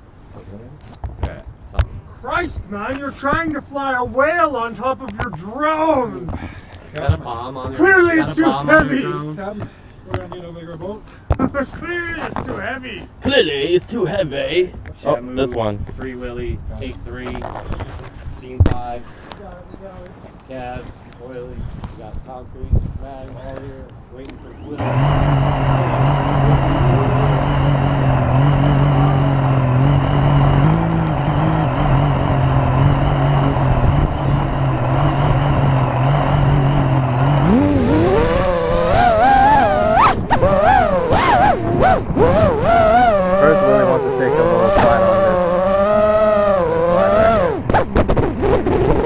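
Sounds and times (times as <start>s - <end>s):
quadcopter motors humming: 24.8s - 49.0s.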